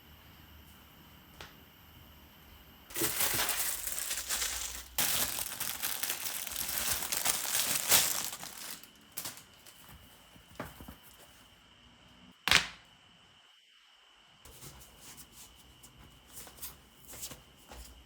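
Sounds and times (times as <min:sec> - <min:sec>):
crinkling rustling: 0:02.9 - 0:11.3.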